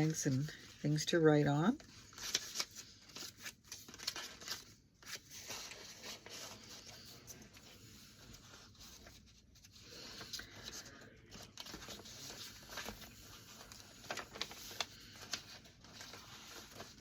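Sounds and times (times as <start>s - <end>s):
paper pages rustling: 0.0s - 17.0s.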